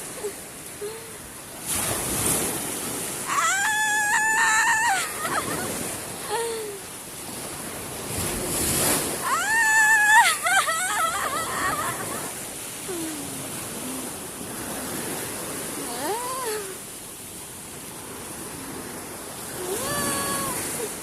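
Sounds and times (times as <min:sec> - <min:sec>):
sea waves washing on shore: 0:00.0 - 0:21.0
high-pitched drawn-out cry: 0:03.3 - 0:05.6, 0:09.2 - 0:12.4.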